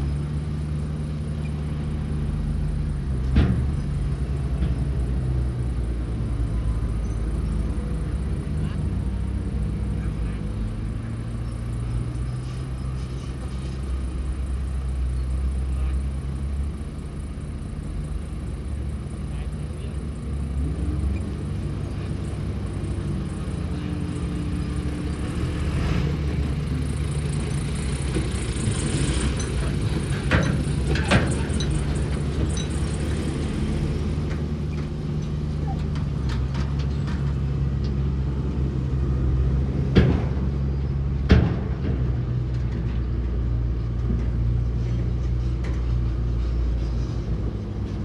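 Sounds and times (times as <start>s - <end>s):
heavy machinery diesel engines: 0.0s - 48.0s.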